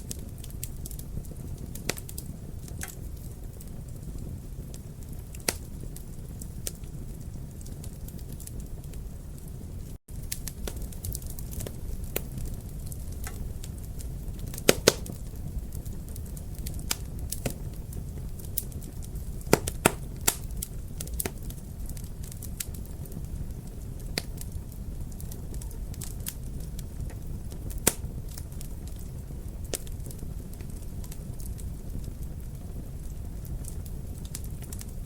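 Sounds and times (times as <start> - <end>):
wood fire burning: 0.0 - 35.0.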